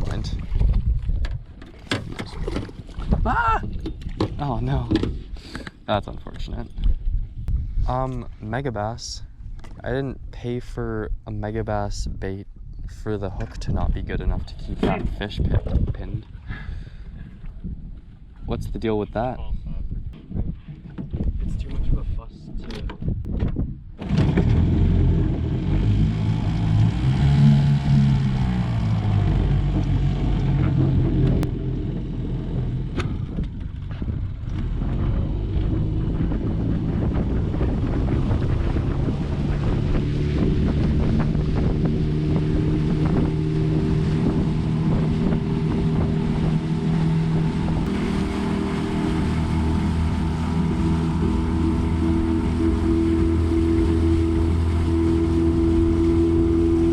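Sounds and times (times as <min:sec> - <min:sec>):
wind buffeting microphone: 0:00.0 - 0:56.9
boat motor running: 0:24.0 - 0:56.9.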